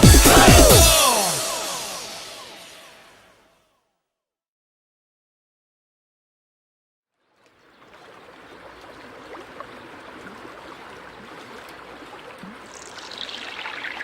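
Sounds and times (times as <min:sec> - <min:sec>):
stream trickling and gurgling: 0:07.1 - 0:14.0.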